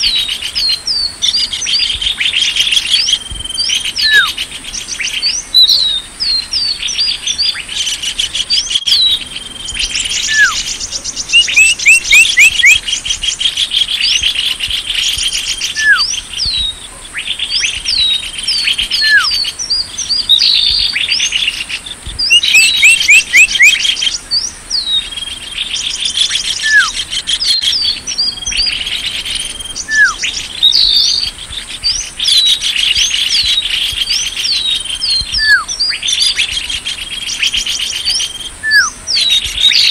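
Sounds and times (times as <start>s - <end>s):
low down-slurred bird whistle: 0.0s - 39.9s
small birds chirping trills: 0.0s - 39.9s
short falling bird whistles: 10.2s - 10.6s, 15.2s - 16.8s, 29.5s - 31.2s.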